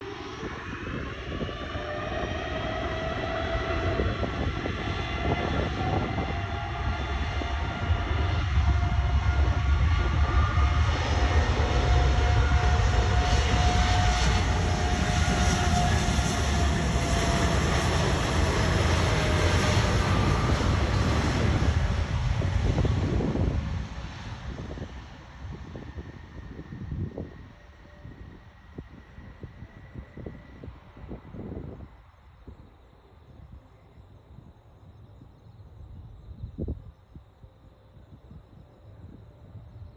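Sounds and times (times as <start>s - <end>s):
jet engines rumbling and whining: 0.0s - 39.9s.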